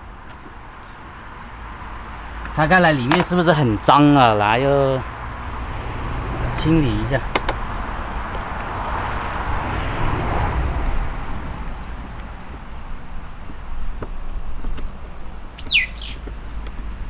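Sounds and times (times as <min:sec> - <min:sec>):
insects chirring: 0:00.0 - 0:17.0
short falling whistle: 0:15.6 - 0:16.2.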